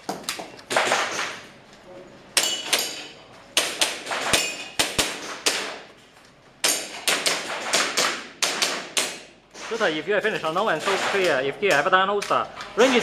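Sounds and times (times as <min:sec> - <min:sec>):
airsoft pistol shots: 0:00.7 - 0:01.4, 0:06.6 - 0:09.3.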